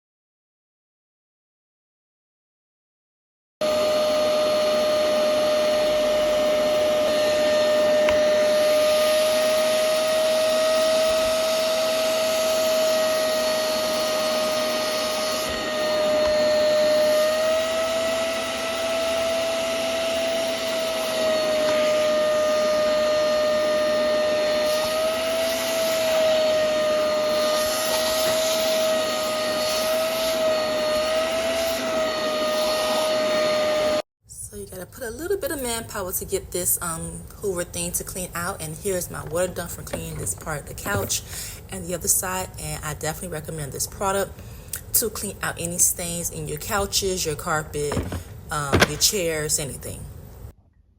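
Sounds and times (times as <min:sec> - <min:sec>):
vacuum suction motor whine: 0:03.6 - 0:34.1, 0:47.8 - 0:49.4.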